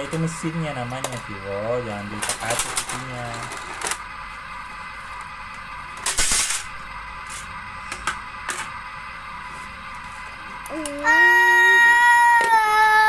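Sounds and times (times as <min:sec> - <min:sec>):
steady high hum: 0:00.0 - 0:13.0
plastic toy clicking and knocking: 0:02.2 - 0:04.0.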